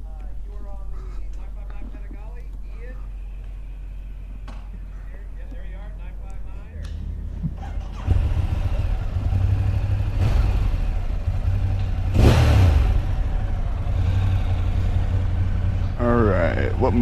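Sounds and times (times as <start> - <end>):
motorcycle engine starting: 7.5 - 17.0.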